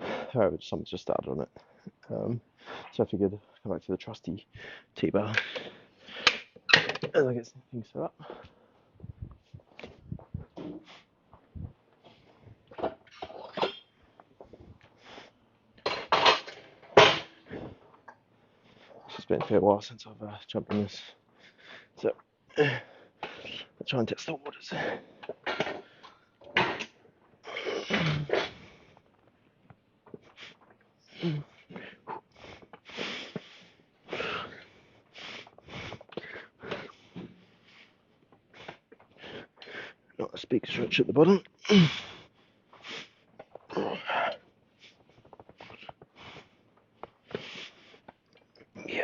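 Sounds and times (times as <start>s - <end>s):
gym equipment clinking and clanking: 12.7s - 14.0s.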